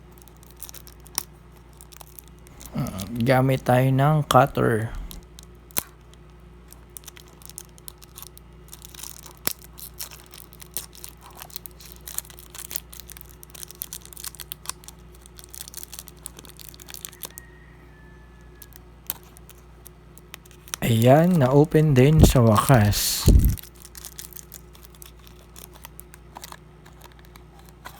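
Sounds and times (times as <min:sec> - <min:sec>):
faint steady hum: 0:02.6 - 0:05.2, 0:20.8 - 0:23.6.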